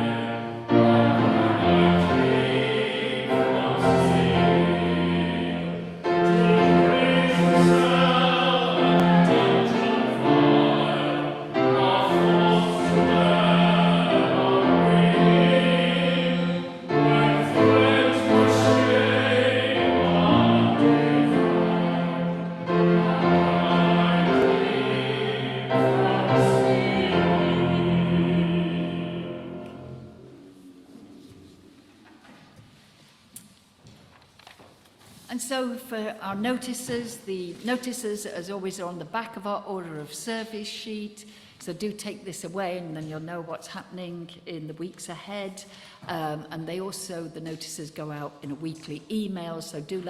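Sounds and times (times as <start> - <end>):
operatic singing voice: 0.0 - 30.2
instrumental accompaniment: 0.0 - 30.7.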